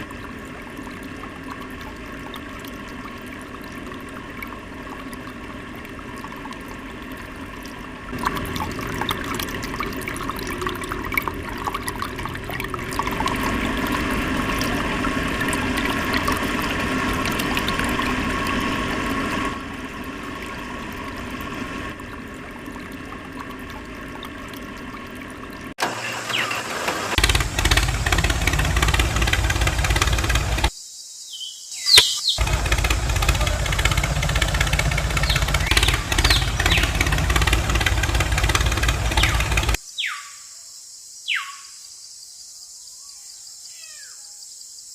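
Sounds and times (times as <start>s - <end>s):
deep engine running: 0.0s - 30.7s, 32.4s - 39.8s
water rushing: 0.0s - 30.8s, 32.3s - 39.8s
small motor running: 25.8s - 30.7s, 32.4s - 39.8s.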